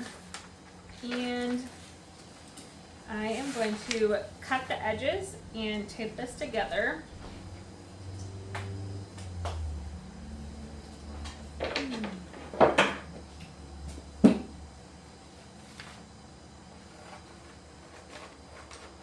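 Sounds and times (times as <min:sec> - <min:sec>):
paper and tape rustling: 0:00.0 - 0:04.6, 0:16.9 - 0:19.0
low hum: 0:03.7 - 0:17.1.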